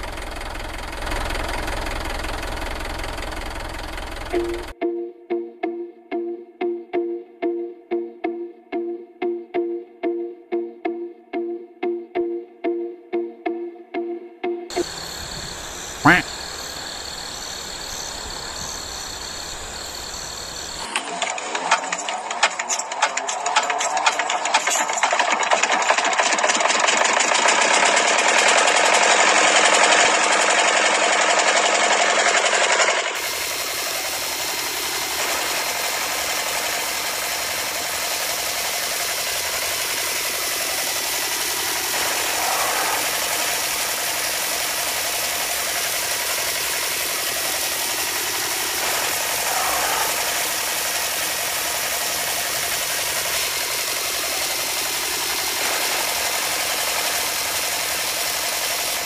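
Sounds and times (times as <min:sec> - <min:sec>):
small motors buzzing rattle: 0:00.0 - 0:04.8, 0:14.7 - 0:59.0
quiet motor hum: 0:14.7 - 0:20.8.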